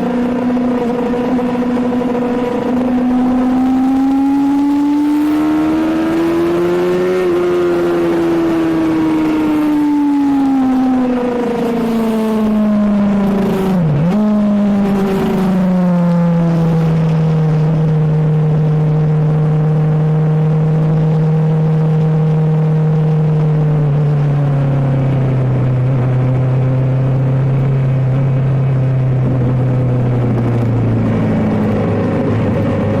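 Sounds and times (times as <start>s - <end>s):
wind rush: 27.3s - 33.0s.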